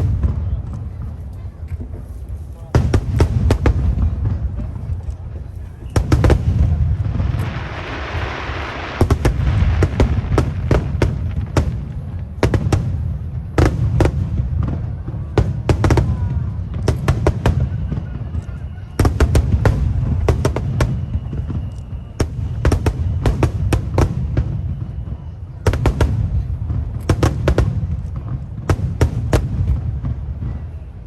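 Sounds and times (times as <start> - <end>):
fireworks bangs: 0.0 - 31.0
fireworks crackling: 0.0 - 31.0.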